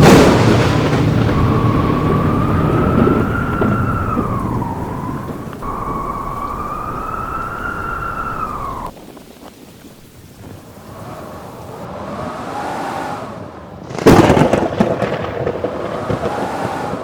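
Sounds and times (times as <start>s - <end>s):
storm wind rumble: 0.0s - 17.0s
wolf howling: 0.7s - 8.9s.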